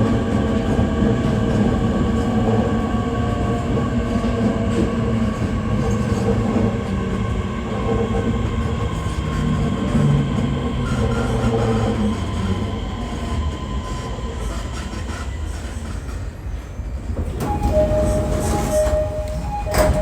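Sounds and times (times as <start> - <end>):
train running rumble: 0.0 - 20.0
wheel and brake squeal: 17.4 - 20.0.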